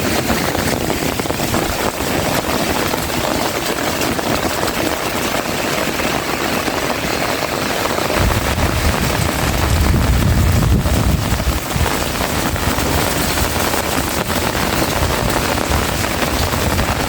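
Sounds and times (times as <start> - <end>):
heavy rain falling: 0.0 - 17.0
deep irregular rumble: 8.1 - 17.0.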